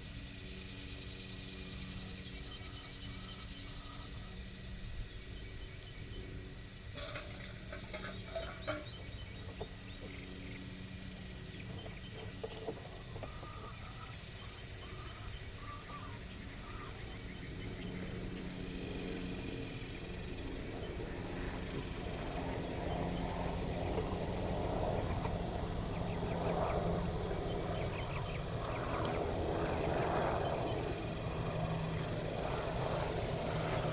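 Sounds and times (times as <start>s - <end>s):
faint fowl calls and chirps: 12.4s - 17.0s
steady low rumble: 16.3s - 33.9s.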